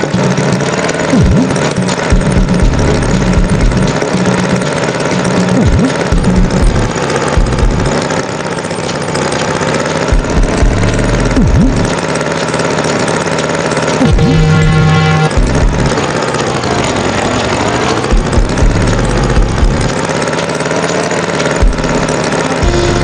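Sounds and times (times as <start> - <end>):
cartoon tractor engine: 0.0 - 23.0
stepped low bass notes: 1.2 - 4.0, 5.4 - 7.9, 10.2 - 11.9, 14.0 - 16.0, 18.2 - 19.9, 21.6 - 23.0.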